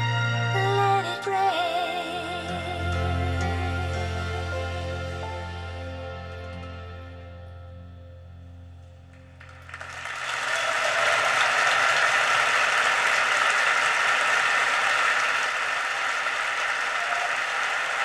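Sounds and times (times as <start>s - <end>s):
audience applauding: 9.2s - 18.0s.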